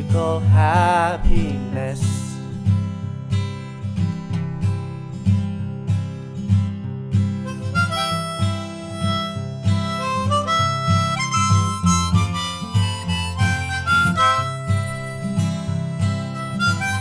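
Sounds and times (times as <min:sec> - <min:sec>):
guitar accompaniment: 0:00.0 - 0:17.0
harmonica melody: 0:07.4 - 0:17.0.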